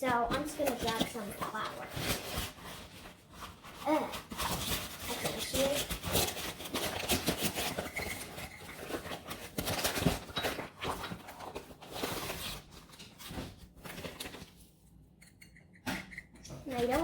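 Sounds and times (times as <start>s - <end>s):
utensil scraping a mixing bowl: 0.1s - 12.7s.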